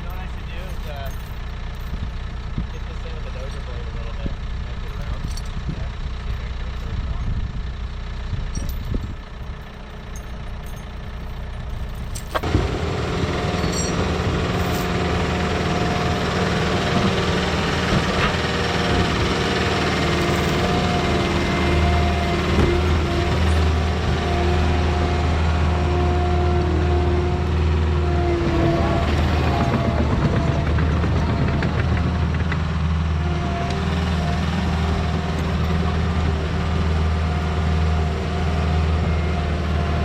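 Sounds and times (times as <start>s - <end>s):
steady whine: 0.0s - 31.0s
diesel engine rumbling: 0.0s - 40.0s.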